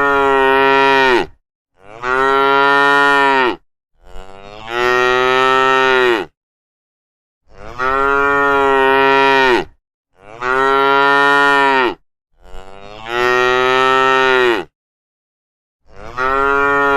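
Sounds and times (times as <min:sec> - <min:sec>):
cattle mooing: 0:00.0 - 0:06.3, 0:07.5 - 0:14.7, 0:15.9 - 0:16.9.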